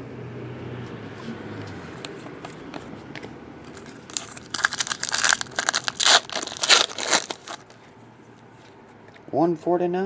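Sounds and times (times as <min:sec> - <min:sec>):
wrapper tearing and crinkling: 0:03.7 - 0:07.8.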